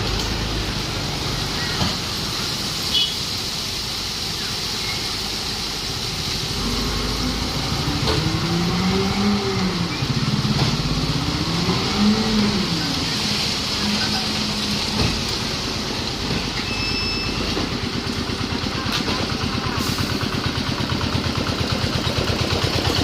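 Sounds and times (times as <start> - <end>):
steady hiss: 0.0 - 8.0
diesel truck engine revving: 5.7 - 16.6, 17.3 - 23.0.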